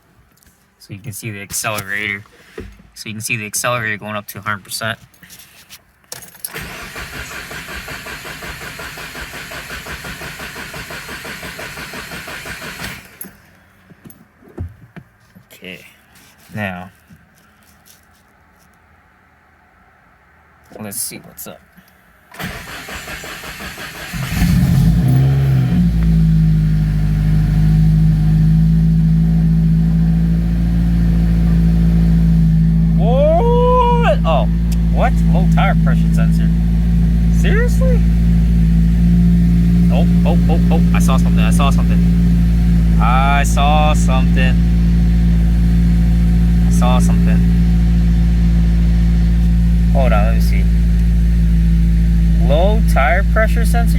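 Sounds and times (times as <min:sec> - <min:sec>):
engine cranking by starter: 0:06.4 - 0:13.6, 0:22.3 - 0:28.0
car engine idling: 0:06.5 - 0:14.0, 0:22.3 - 0:53.9.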